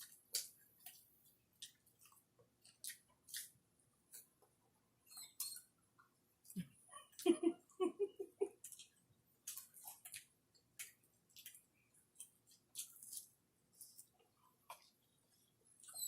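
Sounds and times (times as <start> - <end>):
chewing: 0.0 - 4.5, 8.6 - 15.0.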